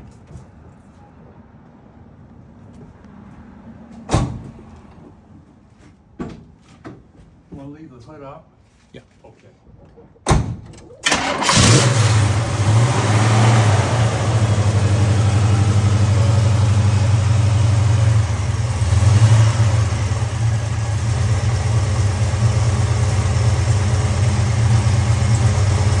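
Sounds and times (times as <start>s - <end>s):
car engine running: 11.0s - 26.0s.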